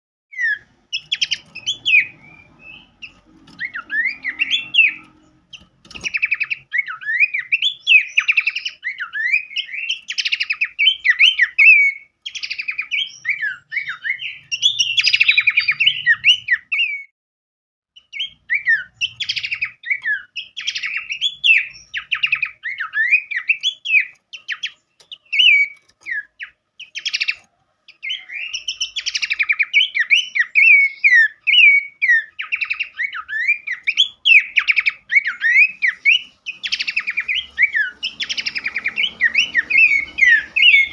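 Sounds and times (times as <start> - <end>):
songbird singing: 0.3 - 17.1, 18.0 - 40.9.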